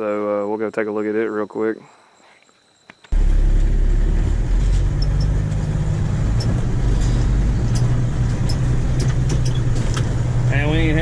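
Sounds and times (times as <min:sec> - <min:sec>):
vehicle engine drone: 0:03.1 - 0:11.0.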